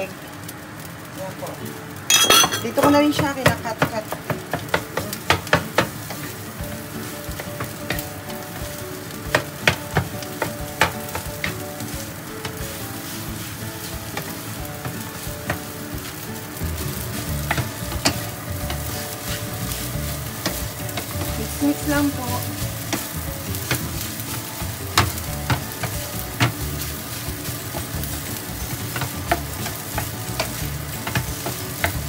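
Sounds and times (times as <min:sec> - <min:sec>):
egg and rice sizzling in pan: 0:00.0 - 0:32.0
spatula tapping and scraping pan: 0:02.1 - 0:32.0.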